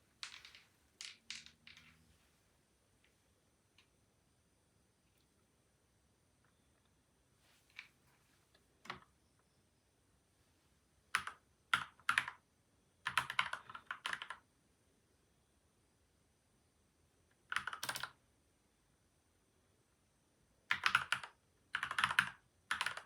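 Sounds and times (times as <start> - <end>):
typing on mechanical keyboard: 11.1 - 12.4, 13.0 - 14.4, 17.4 - 18.2, 20.7 - 23.0.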